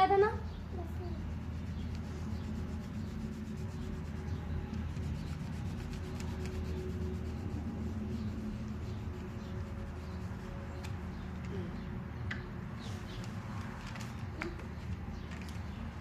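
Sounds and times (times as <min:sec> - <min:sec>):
low hum: 0:00.4 - 0:16.0
colouring strokes on paper: 0:00.7 - 0:11.4.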